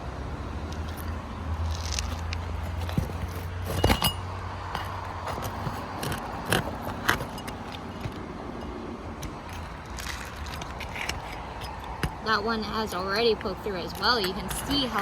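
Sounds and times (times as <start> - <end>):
metallic clicks and knocks: 1.7 - 12.2.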